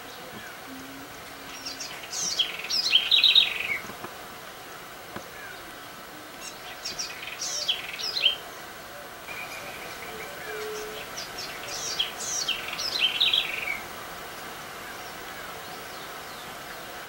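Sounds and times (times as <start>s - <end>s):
bird singing high notes: 9.3s - 13.8s.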